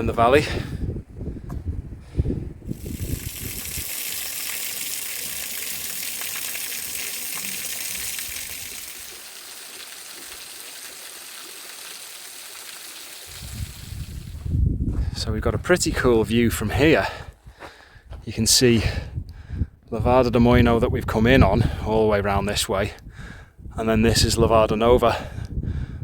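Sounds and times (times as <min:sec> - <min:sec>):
rushing water: 0:02.7 - 0:14.4.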